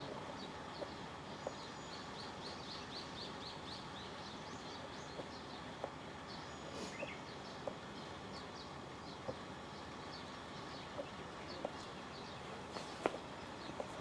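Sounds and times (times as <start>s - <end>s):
small birds chirping: 0.0s - 14.0s
steady outdoor hiss: 0.0s - 14.0s.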